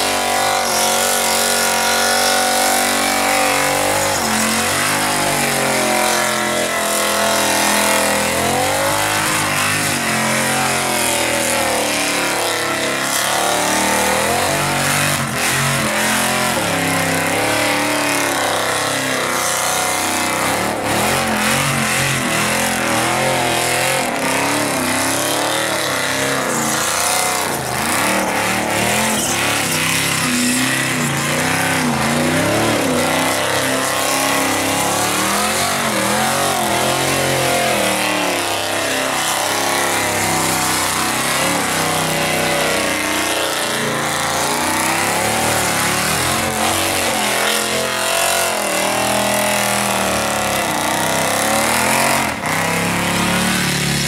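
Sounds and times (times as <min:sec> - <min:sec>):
car engine revving high: 0:00.0 - 0:54.0.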